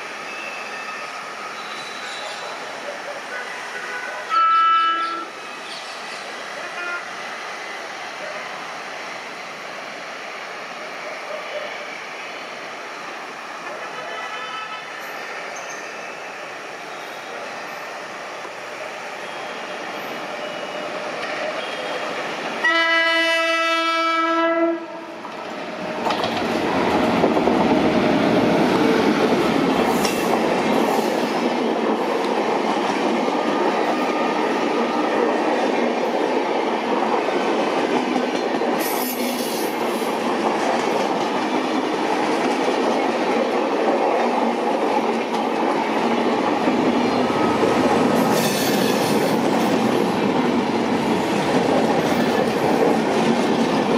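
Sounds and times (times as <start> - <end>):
train wheels on rails: 0.0 - 53.9
train horn blast: 3.4 - 5.3, 6.6 - 7.1, 22.6 - 25.2.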